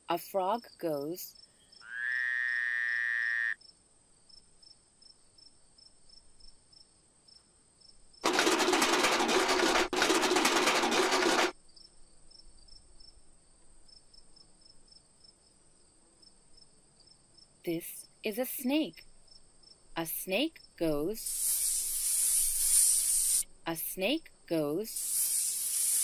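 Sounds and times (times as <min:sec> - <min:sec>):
high frog call: 0:01.8 - 0:03.6
crickets chirping: 0:03.6 - 0:08.0, 0:11.7 - 0:18.2, 0:18.9 - 0:23.4
cartoon box rattling: 0:08.2 - 0:11.5.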